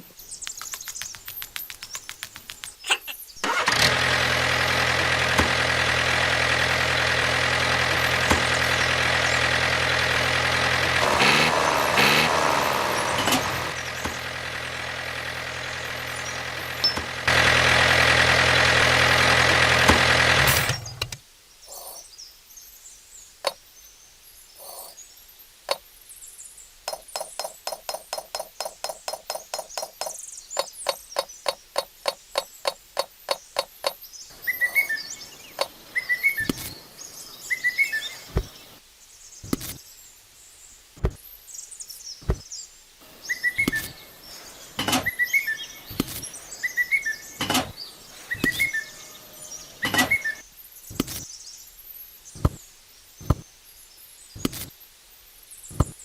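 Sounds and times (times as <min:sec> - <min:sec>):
motor humming: 0:03.4 - 0:21.2, 0:43.0 - 0:50.4.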